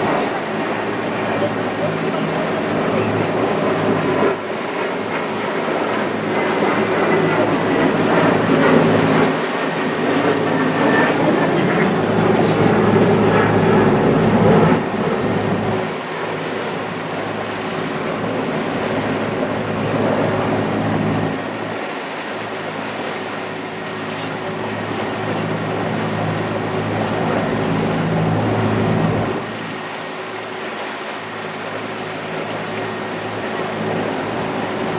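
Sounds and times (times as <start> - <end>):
boat engine running: 0.0 - 34.9
rushing water: 0.0 - 34.9
wind: 0.0 - 34.9.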